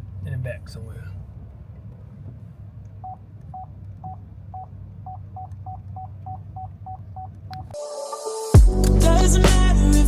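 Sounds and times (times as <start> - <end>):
car interior rumble: 0.0 - 7.8.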